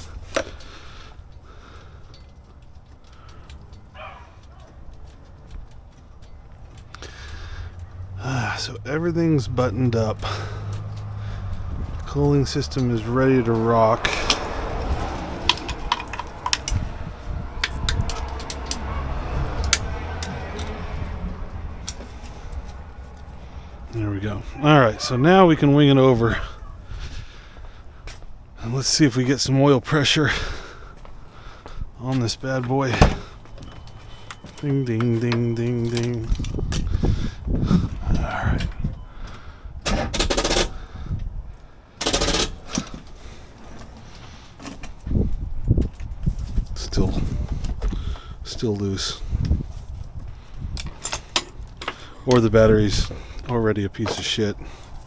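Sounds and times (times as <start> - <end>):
hand tools clicking and clinking: 0.0 - 8.2, 9.0 - 25.2, 32.6 - 36.8, 39.9 - 40.8, 42.0 - 45.0, 50.7 - 55.0.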